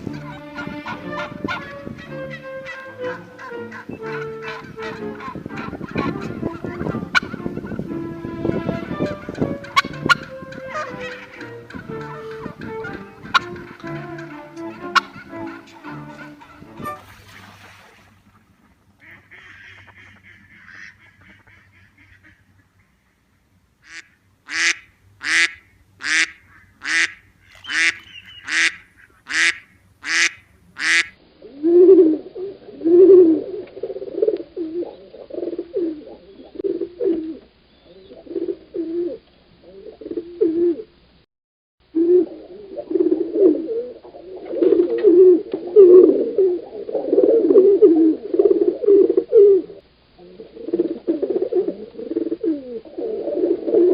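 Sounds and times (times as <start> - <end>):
ducks or geese honking: 0.0 - 17.6, 18.4 - 31.2
sharp bird calls: 23.8 - 31.2.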